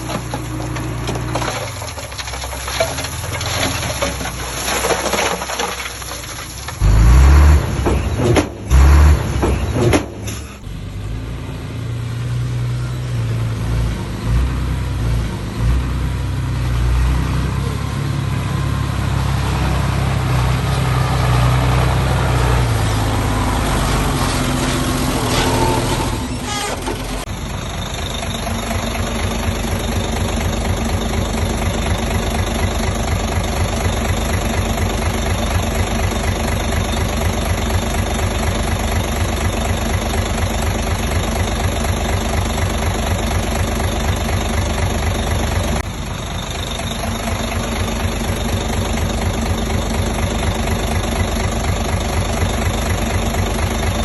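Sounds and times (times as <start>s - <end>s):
clattering: 0.0s - 7.0s
heavy machinery diesel engine: 0.0s - 54.0s.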